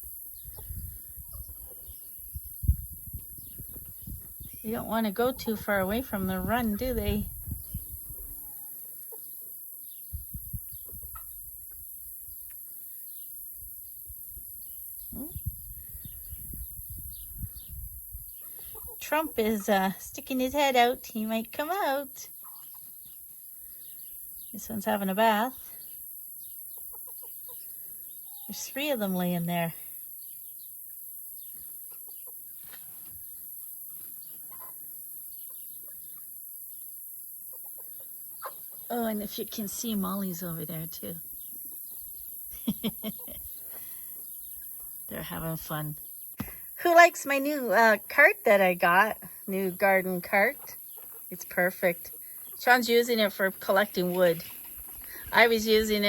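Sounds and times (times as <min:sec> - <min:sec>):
chicks peeping: 0:00.1 - 0:19.6, 0:22.3 - 0:24.9, 0:25.6 - 0:29.3, 0:30.0 - 0:38.9, 0:40.9 - 0:45.4, 0:49.8 - 0:53.3
chickens clucking: 0:22.3 - 0:23.2, 0:26.6 - 0:27.7, 0:31.4 - 0:38.9, 0:50.5 - 0:52.6.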